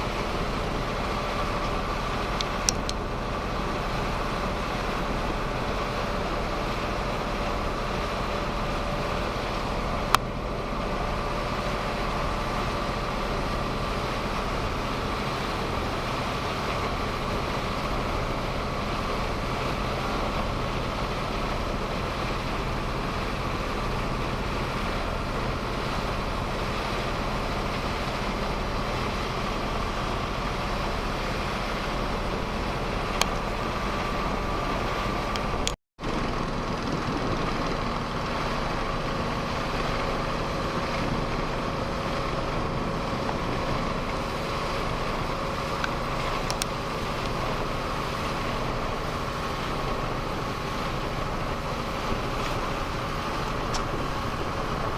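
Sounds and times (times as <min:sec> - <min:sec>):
boat engine droning: 0:00.0 - 0:54.9
faint steady whine: 0:00.0 - 0:54.9
sharp click: 0:02.4 - 0:03.0.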